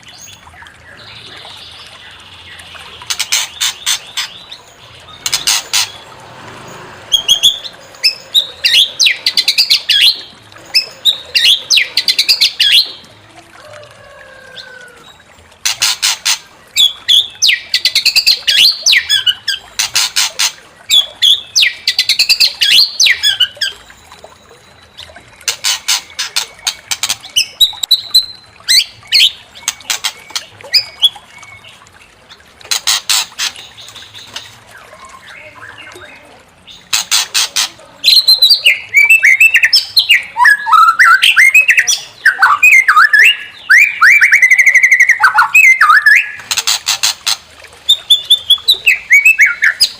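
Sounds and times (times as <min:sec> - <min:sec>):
bird whistled phrases: 0:38.1 - 0:46.4, 0:47.9 - 0:49.9.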